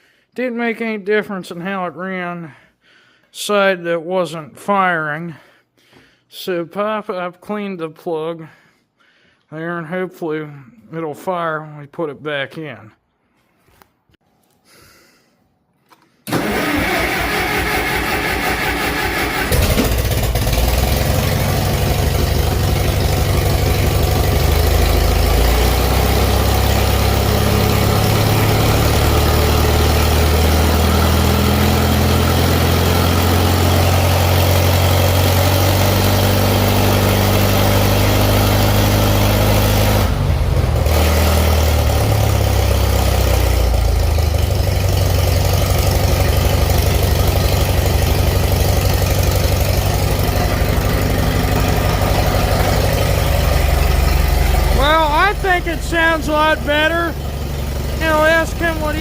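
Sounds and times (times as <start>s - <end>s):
engine cranking on starter: 16.2s - 59.0s
tractor engine running: 16.3s - 59.0s.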